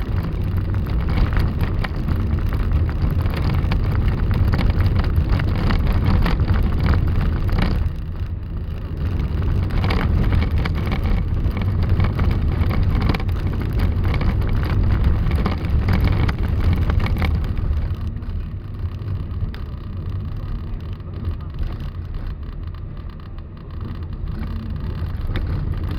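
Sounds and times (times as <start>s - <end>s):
crackling gusts: 0.0s - 25.9s
road traffic rumble: 0.0s - 25.9s
snowstorm wind: 0.0s - 25.9s.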